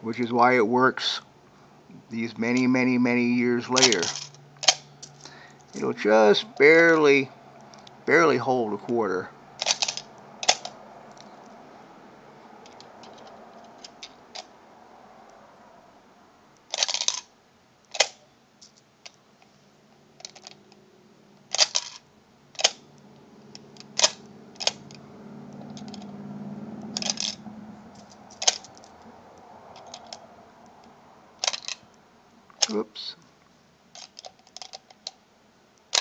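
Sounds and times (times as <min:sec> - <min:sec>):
metallic clicks of coin bank: 0:03.8 - 0:04.9, 0:21.5 - 0:22.0, 0:27.0 - 0:27.4, 0:31.4 - 0:31.8
coins dropping among coins: 0:03.8 - 0:05.9, 0:09.6 - 0:10.7, 0:16.7 - 0:17.3, 0:21.5 - 0:22.0, 0:27.0 - 0:27.4, 0:31.4 - 0:31.8.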